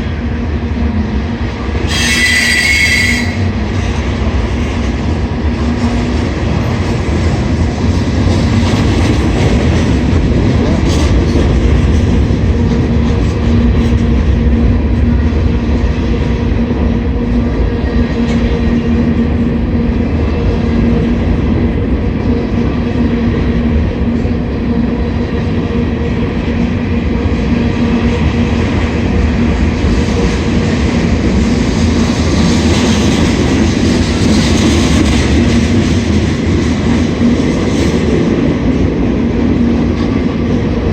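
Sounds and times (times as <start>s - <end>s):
freight train wheels on rails: 0.0s - 40.9s.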